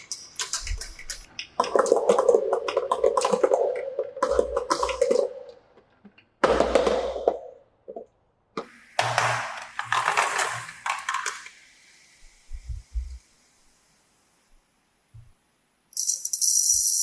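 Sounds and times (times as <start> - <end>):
marbles rattling down plastic track: 9.7 - 11.5, 16.0 - 17.0.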